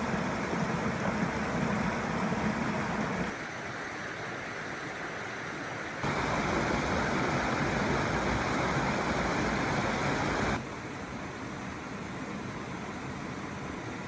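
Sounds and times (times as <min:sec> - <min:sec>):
stream water rushing: 0:06.0 - 0:10.6.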